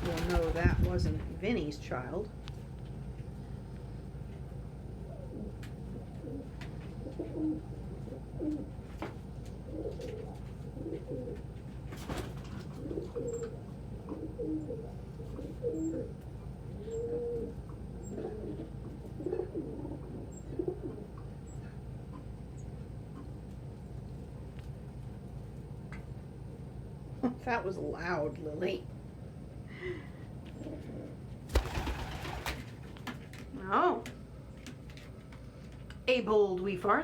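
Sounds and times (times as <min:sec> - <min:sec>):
steady low hum: 0:00.0 - 0:37.0
pigeons cooing: 0:04.9 - 0:11.6, 0:12.2 - 0:21.8, 0:30.6 - 0:32.7.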